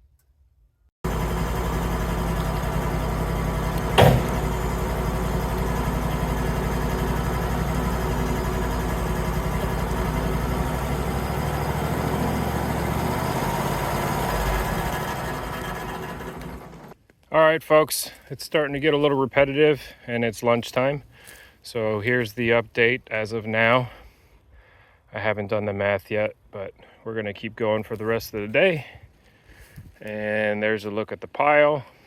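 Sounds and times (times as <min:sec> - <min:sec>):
sawmill engine running: 0:01.0 - 0:17.0
sharp knock: 0:04.0 - 0:04.4.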